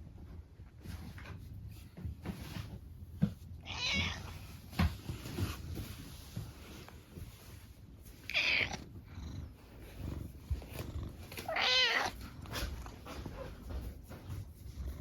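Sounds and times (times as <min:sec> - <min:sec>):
cat meowing: 0:03.6 - 0:04.4, 0:08.2 - 0:08.8, 0:11.4 - 0:12.2.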